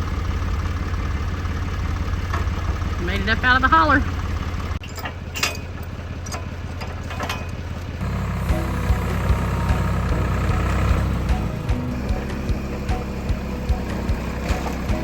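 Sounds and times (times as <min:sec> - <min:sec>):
tractor engine running: 0:00.0 - 0:15.0
knocks and clatters: 0:04.7 - 0:15.0.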